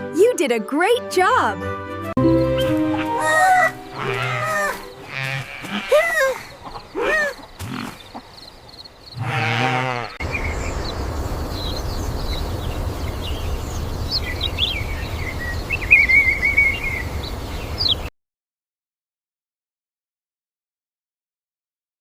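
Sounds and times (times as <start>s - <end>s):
birds chirping: 2.2s - 18.1s
steady low rumble: 10.2s - 15.8s.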